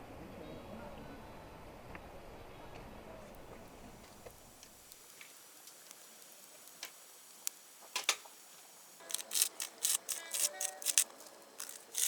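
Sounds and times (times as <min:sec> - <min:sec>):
meat crackling in a hot pan: 0:04.0 - 0:12.0.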